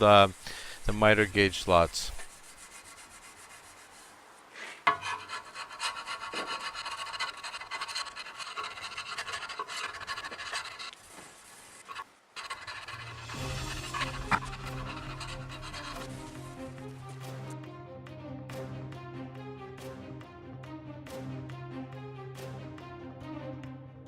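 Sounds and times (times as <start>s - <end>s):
scraper scraping rust off metal: 1.0s - 17.2s
music: 13.0s - 24.0s.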